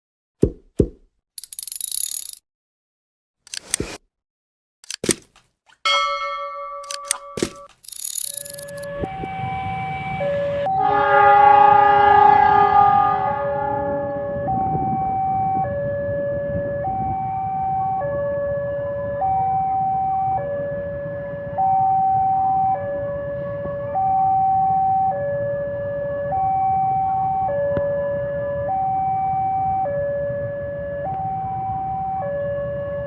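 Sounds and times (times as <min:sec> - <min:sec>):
two-tone electronic alarm: 0:05.9 - 0:18.4.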